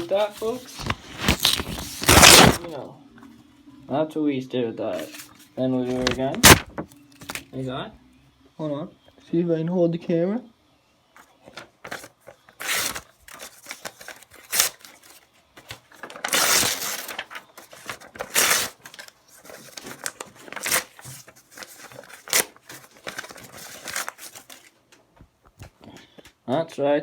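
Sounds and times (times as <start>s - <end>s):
paper crinkling: 0.0s - 2.8s, 5.0s - 7.5s, 11.5s - 24.8s
paper ripping: 0.0s - 2.8s, 5.0s - 7.4s, 11.8s - 24.7s.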